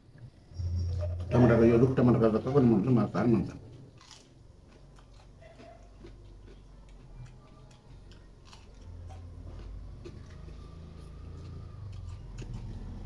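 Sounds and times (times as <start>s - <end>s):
low hum: 0.0s - 5.1s
person chewing food: 3.6s - 13.0s.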